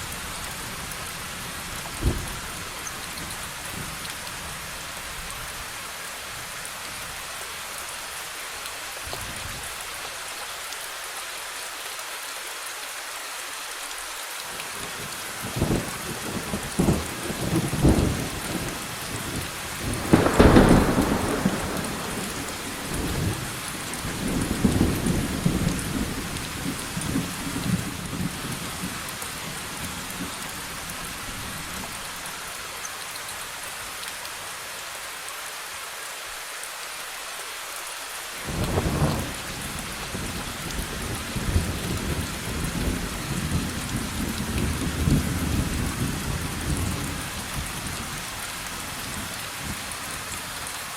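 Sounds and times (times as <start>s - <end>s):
steady rain: 0.0s - 50.9s
rolling thunder: 15.5s - 28.9s
loud thunderclap: 19.3s - 28.5s.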